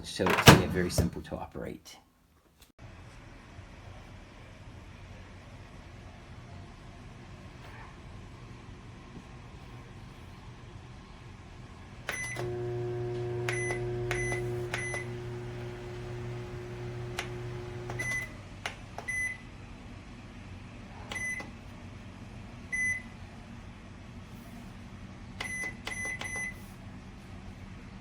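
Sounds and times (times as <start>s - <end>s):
microwave humming: 12.0s - 19.6s
microwave beeping: 12.1s - 18.4s, 19.0s - 19.5s, 21.1s - 21.6s, 22.7s - 23.1s, 25.4s - 26.6s.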